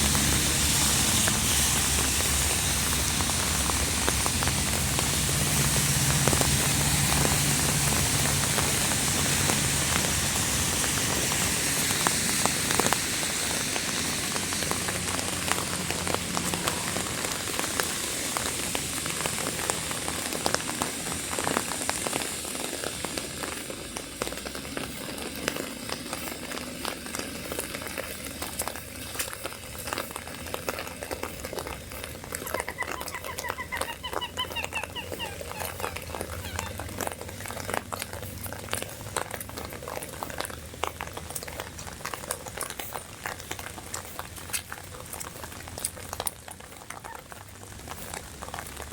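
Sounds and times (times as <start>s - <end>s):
rain patter: 0.0s - 48.9s
short pitched calls: 32.4s - 37.0s.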